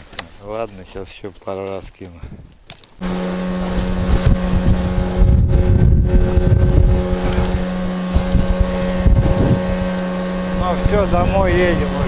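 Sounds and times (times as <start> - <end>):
wind buffeting microphone: 2.2 - 12.0
boat motor humming: 3.0 - 12.0.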